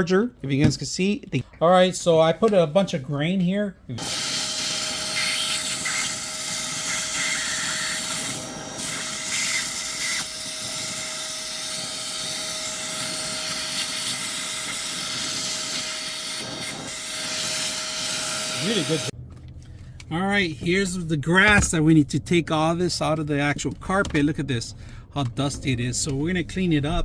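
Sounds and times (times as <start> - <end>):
handheld vacuum running: 4.0 - 19.1.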